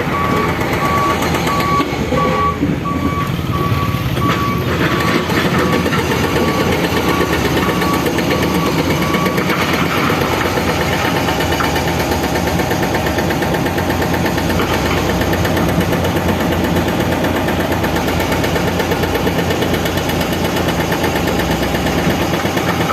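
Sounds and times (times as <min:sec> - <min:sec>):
reversing alarm beeping: 0:00.0 - 0:12.4
diesel engine rumbling: 0:00.0 - 0:22.9.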